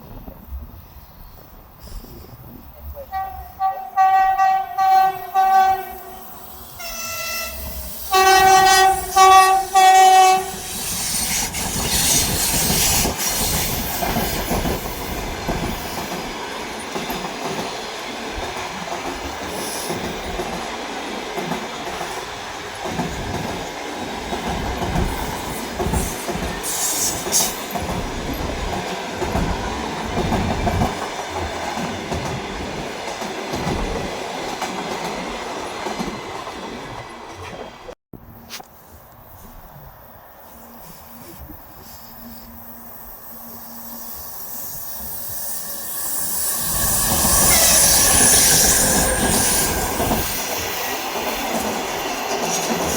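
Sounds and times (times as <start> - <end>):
train rumbling past: 0.0 - 52.9
train horn blasts: 3.1 - 10.8.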